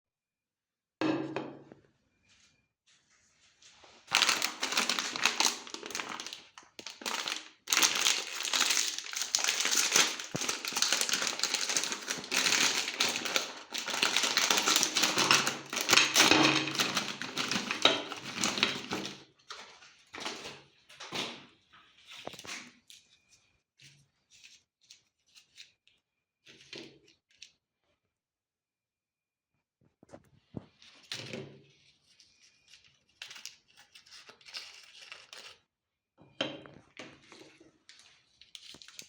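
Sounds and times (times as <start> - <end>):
meat grinder crunching candies: 4.1 - 19.2.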